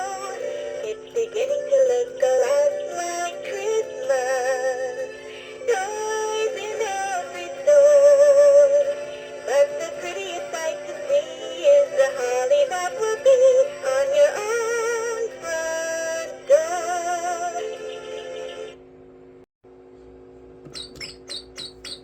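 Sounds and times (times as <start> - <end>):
electronic bird toy singing: 0.3 - 4.8, 20.7 - 22.0.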